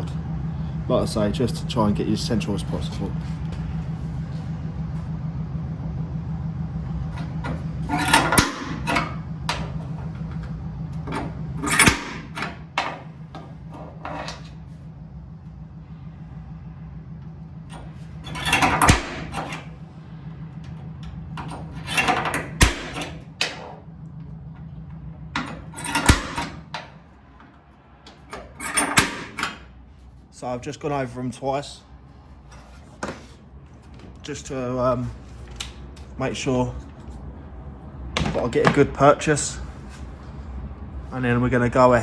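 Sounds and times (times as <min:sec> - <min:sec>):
steady low hum: 0:00.0 - 0:42.0
punch tip scraping metal: 0:11.6 - 0:12.6, 0:28.4 - 0:29.6.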